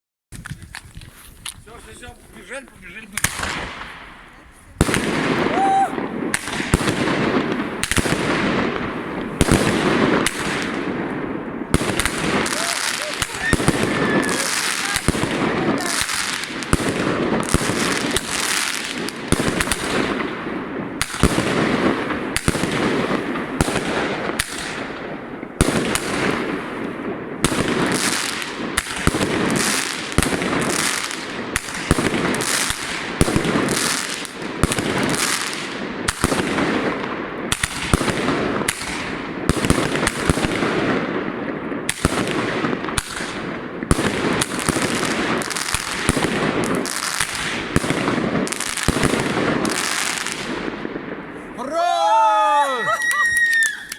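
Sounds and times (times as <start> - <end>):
fireworks bangs: 0.3 - 53.9
fireworks hissing and crackling: 0.4 - 53.9.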